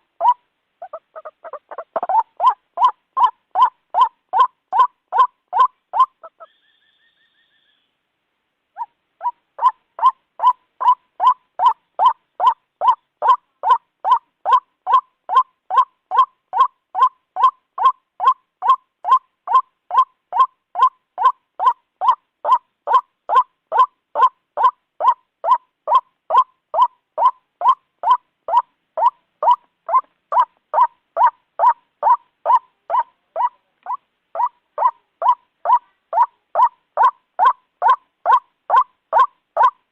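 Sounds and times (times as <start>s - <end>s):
waterhen calling: 0.0s - 8.0s, 8.8s - 39.8s
faint whistle-like tone: 6.5s - 7.9s.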